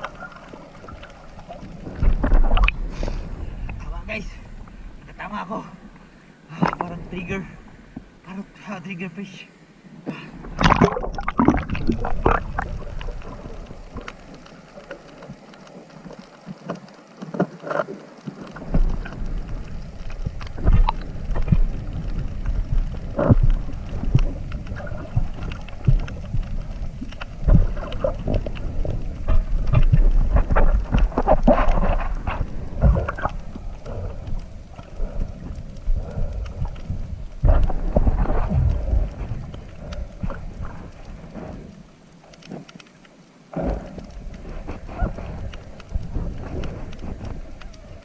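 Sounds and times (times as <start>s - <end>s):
water splashing and churning: 0.0s - 8.5s, 9.9s - 48.0s.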